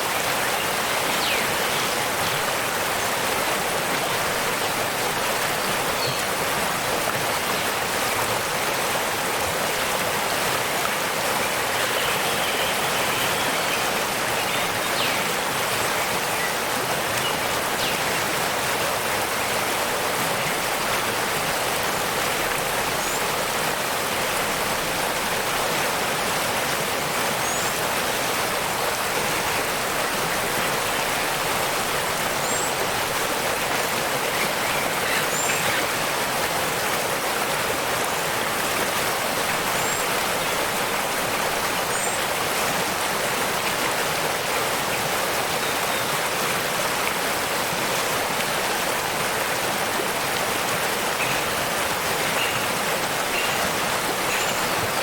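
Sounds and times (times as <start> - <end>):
rushing falling water: 0.0 - 55.0.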